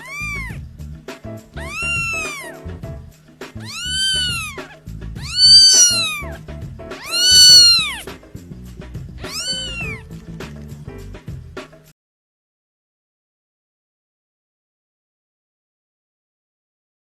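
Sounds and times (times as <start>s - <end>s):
cat meowing: 0.0s - 0.6s, 1.5s - 8.1s, 9.2s - 10.2s
background music: 0.0s - 11.9s.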